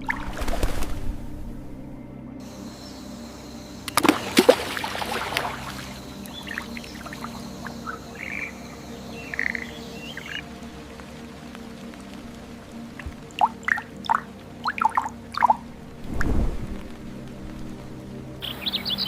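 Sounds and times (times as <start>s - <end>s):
soft ambient drone music: 0.0s - 19.0s
water splashing: 3.9s - 8.6s, 9.2s - 19.0s.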